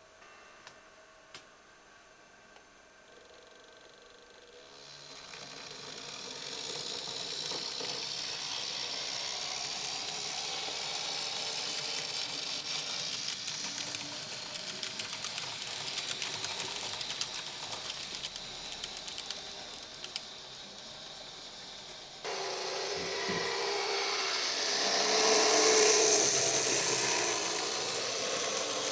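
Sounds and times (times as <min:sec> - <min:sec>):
model train whine and hiss: 0:03.1 - 0:28.9
rapid clicking: 0:05.4 - 0:20.3.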